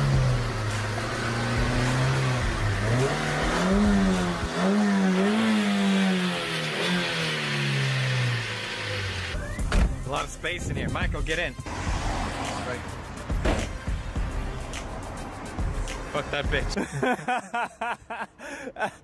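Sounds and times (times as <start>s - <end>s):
car engine revving: 0.0s - 10.1s, 11.2s - 13.4s.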